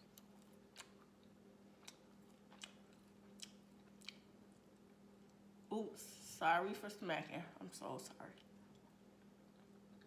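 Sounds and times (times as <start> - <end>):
person chewing with wet smacks: 0.0 - 5.4, 8.4 - 10.0.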